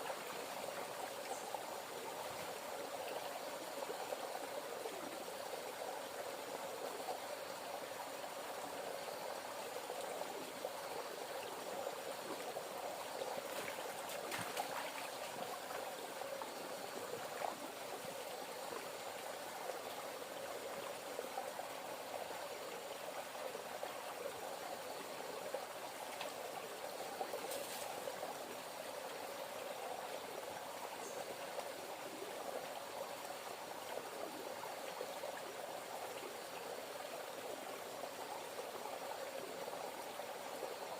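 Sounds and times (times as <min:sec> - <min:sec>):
water flowing or bubbling: 0:00.0 - 0:40.9.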